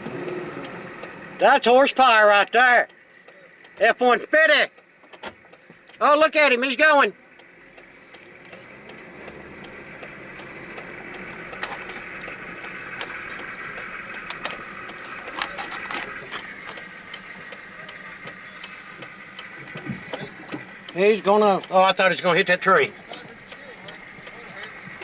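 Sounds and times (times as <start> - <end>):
monster truck engine running: 0.0 - 25.0
clicks and rattles: 11.1 - 17.6.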